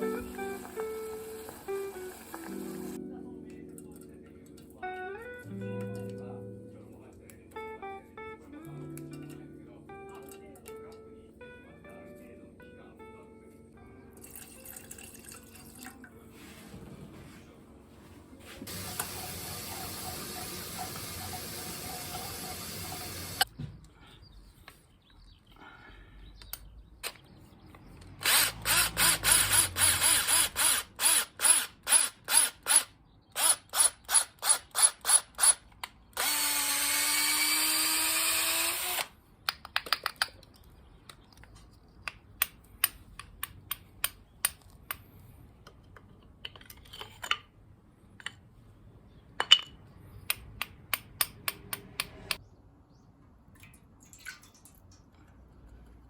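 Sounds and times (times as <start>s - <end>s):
electric drill running: 18.7s - 23.4s, 28.2s - 35.6s, 36.2s - 39.1s.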